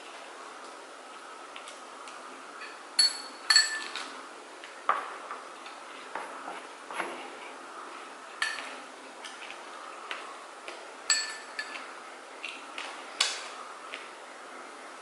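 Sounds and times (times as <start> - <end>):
utensils clinking against dishes: 2.6 - 4.0, 8.4 - 8.8, 11.1 - 11.9.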